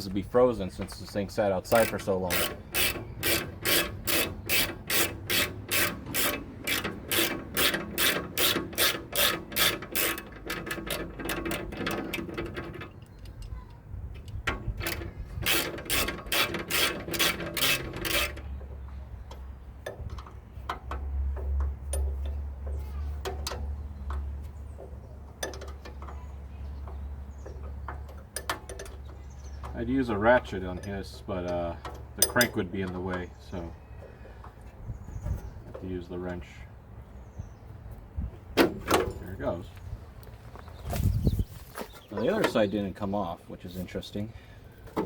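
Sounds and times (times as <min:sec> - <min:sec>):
ratchet wrench clicking: 0:01.7 - 0:12.5, 0:14.8 - 0:18.5.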